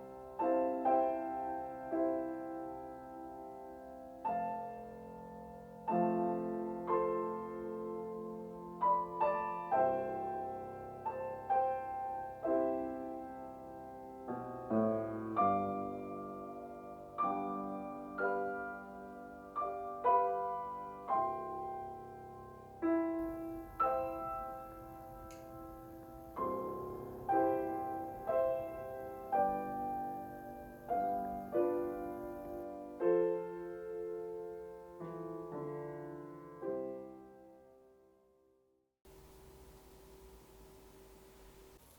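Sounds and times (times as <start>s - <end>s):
faint hiss: 0.0s - 38.1s, 39.1s - 41.9s
soft solo piano: 0.0s - 41.9s.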